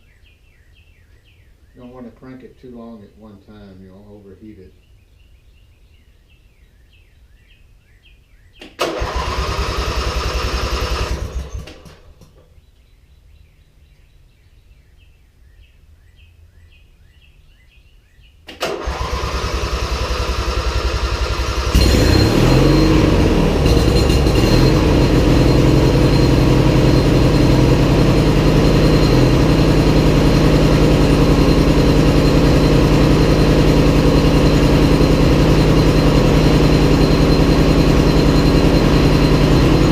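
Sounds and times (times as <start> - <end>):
electric starter cranking engine: 8.6 - 12.4, 18.5 - 39.9
mower engine running: 8.8 - 12.4, 18.6 - 39.9.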